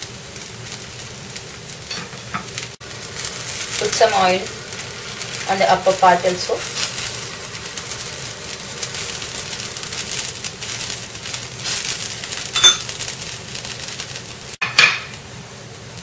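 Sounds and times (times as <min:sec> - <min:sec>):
oil sizzling and crackling: 0:00.0 - 0:16.0
metal spoon clinking on pan: 0:12.6 - 0:12.9.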